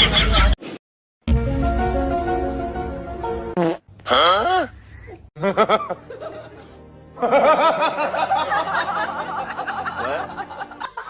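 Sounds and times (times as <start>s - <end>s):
background music: 1.2s - 3.6s, 5.4s - 11.0s.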